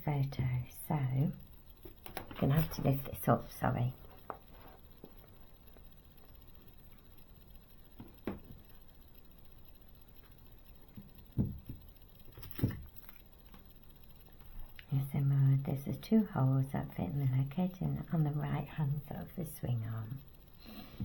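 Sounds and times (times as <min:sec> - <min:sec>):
soft knocks: 0:11.4 - 0:11.8.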